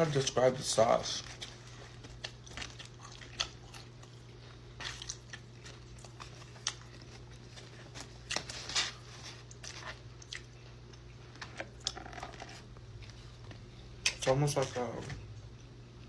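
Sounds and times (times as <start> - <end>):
biting and chewing crispy chicken: 1.0 - 15.7.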